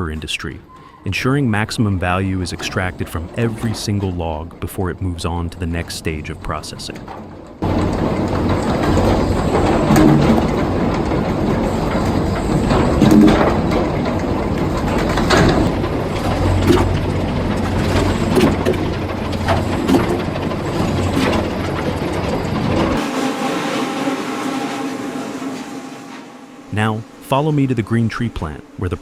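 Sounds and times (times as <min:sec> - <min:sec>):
sawmill machinery rumbling: 0:00.0 - 0:29.0
heavy knocks and clanks: 0:02.4 - 0:28.8.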